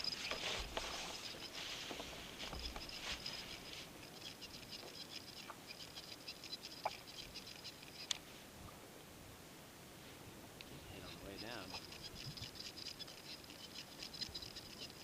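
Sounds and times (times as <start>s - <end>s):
fishing reel ticking: 0.0s - 1.6s, 2.4s - 8.2s, 11.0s - 15.0s
sharp reel clicks: 2.6s - 8.2s, 11.1s - 15.0s.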